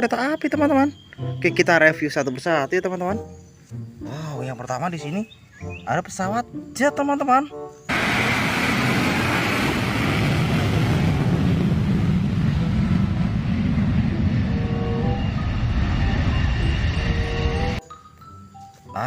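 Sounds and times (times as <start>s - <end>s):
jet engine rumble: 7.9s - 17.8s.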